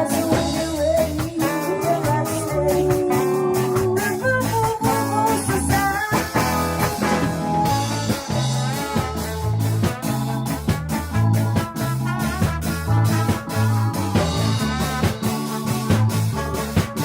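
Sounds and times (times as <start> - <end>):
ska band playing: 0.0 - 17.0.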